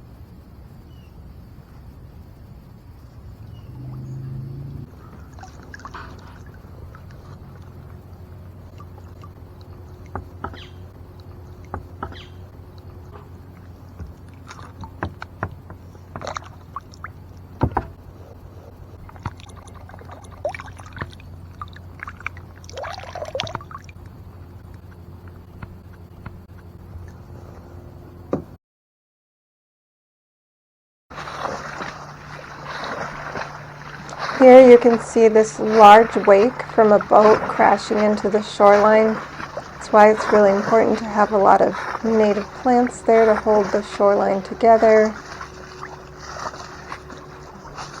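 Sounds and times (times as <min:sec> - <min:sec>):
low hum: 0:00.0 - 0:28.6, 0:31.1 - 0:48.0
gurgling splash: 0:03.4 - 0:24.4, 0:31.1 - 0:48.0
paddle splashing in water: 0:03.4 - 0:27.6, 0:31.1 - 0:48.0.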